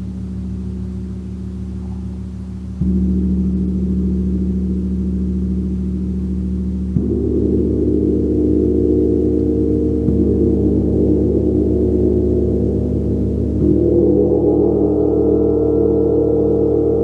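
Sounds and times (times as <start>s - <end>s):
gong struck with mallet: 1.2s - 17.0s.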